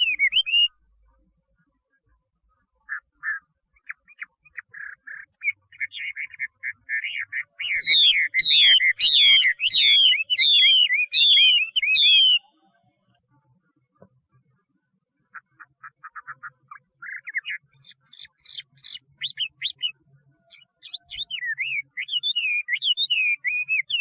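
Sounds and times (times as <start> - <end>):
bird whistled phrases: 0.0 - 0.7, 3.3 - 12.5, 17.0 - 24.0
bird chattering notes: 2.9 - 12.4.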